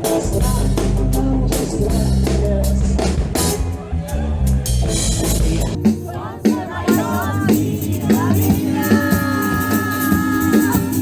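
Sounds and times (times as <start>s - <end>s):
pop song with singing: 0.0s - 3.5s, 5.2s - 11.0s.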